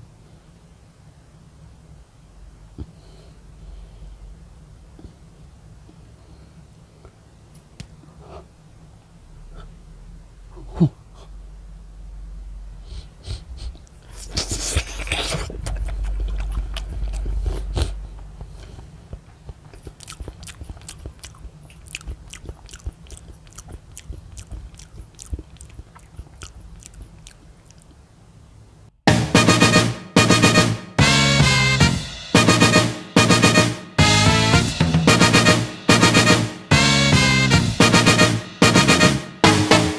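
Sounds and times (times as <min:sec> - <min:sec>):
wet chewing clicks: 0:13.8 - 0:28.1.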